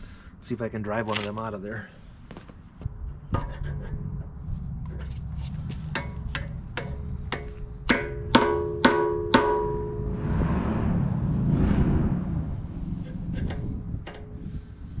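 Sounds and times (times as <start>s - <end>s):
hammer striking steel: 5.9s - 10.1s.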